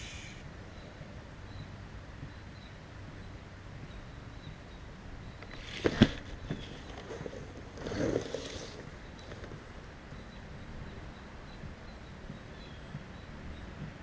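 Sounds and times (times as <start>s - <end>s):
faint background noise: 0.0s - 14.0s.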